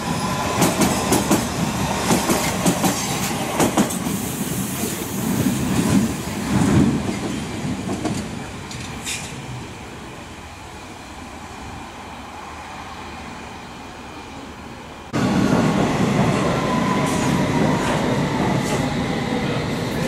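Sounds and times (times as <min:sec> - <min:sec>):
train high whine: 0:08.2 - 0:20.0.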